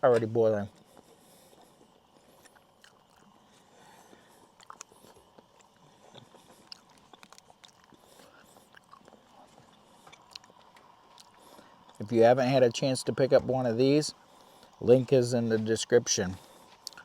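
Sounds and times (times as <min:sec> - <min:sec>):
faint clicks and crackles: 0:00.1 - 0:12.1, 0:16.5 - 0:17.0.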